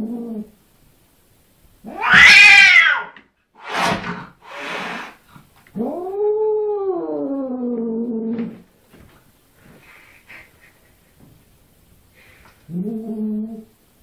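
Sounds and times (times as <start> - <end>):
cat yowling: 1.9 - 3.2
cat hissing: 1.9 - 5.2.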